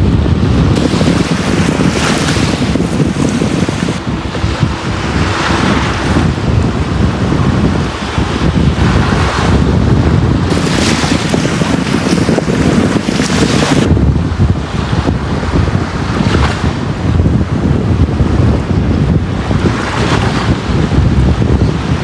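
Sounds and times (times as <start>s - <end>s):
low rumble of surf: 0.0s - 22.0s
ocean waves breaking on a beach: 0.5s - 14.0s.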